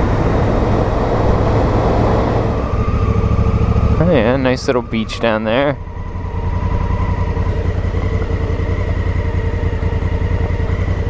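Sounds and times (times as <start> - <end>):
motorcycle engine idling: 2.5 - 11.0.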